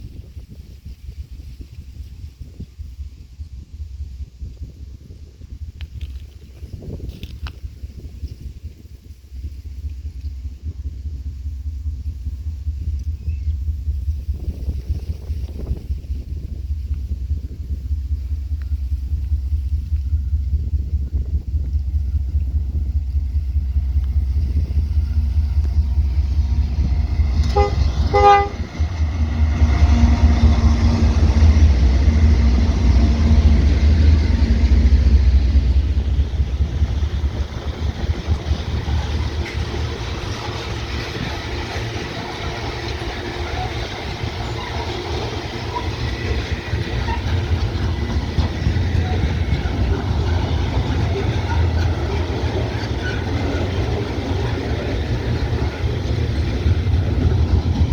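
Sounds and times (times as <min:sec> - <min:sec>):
locomotive engine rumble: 0:00.0 - 0:57.9
locomotive horn blasts: 0:25.7 - 0:32.9.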